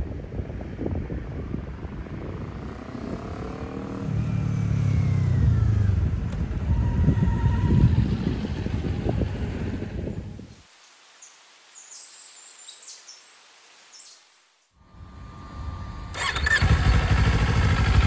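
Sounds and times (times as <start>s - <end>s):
vehicle engine running: 15.0s - 18.0s.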